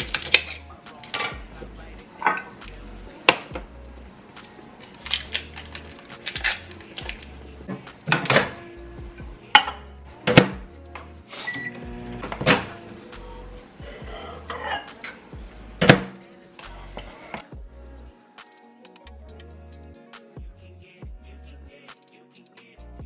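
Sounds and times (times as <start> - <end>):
dishes and utensils clinking: 0.0 - 1.5, 2.1 - 3.6, 4.3 - 8.8, 14.0 - 16.3
background music: 0.0 - 23.0.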